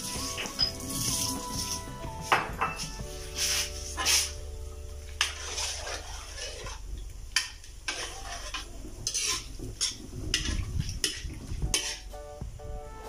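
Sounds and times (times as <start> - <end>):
metal ladle scraping a wok: 2.7 - 4.5, 5.1 - 12.2.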